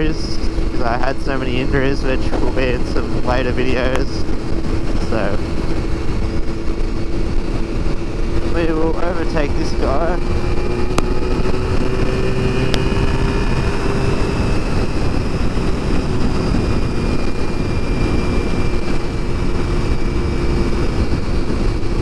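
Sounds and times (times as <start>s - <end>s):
motorcycle engine running: 0.0s - 22.0s
wind rumble on microphone: 0.0s - 22.0s.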